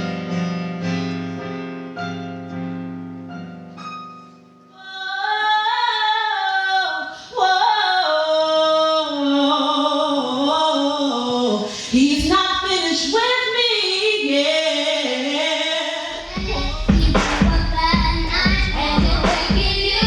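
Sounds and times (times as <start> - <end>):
piano chords: 0.0 - 5.0, 16.1 - 20.0
woman singing: 4.8 - 20.0.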